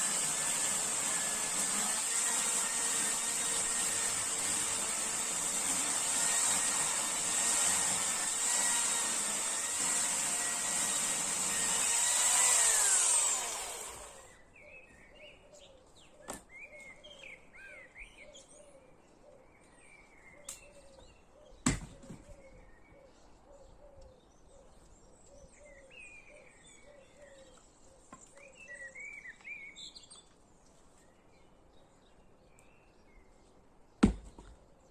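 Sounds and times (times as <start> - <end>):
chainsaw engine running: 5.3 - 14.3.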